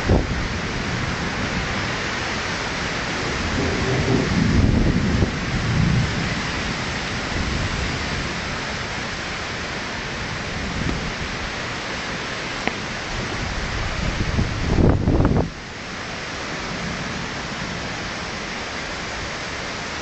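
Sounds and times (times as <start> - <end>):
thunder rumbling: 0.0 - 15.6
rain falling steadily: 0.0 - 20.0.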